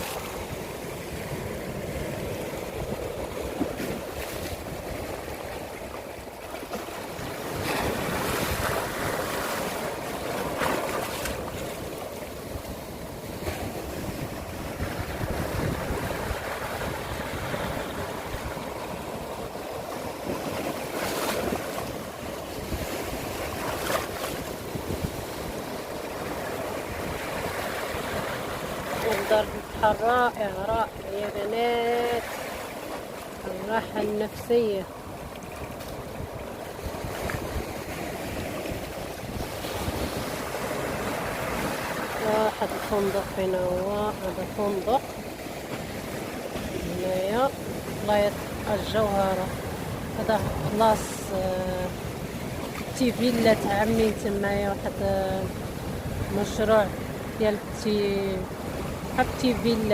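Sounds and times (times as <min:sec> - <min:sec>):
sea waves breaking: 0:00.0 - 0:59.9
wind buffeting microphone: 0:11.2 - 0:19.6.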